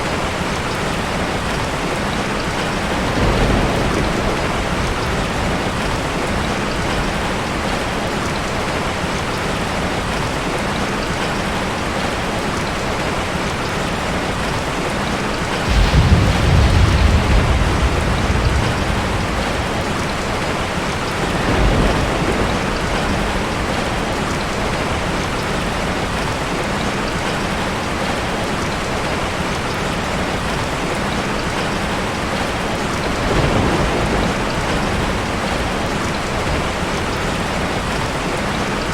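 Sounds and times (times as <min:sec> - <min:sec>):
heavy rain falling: 0:00.0 - 0:38.9
thunder rumbling: 0:02.4 - 0:10.2, 0:15.2 - 0:26.2, 0:32.0 - 0:38.6.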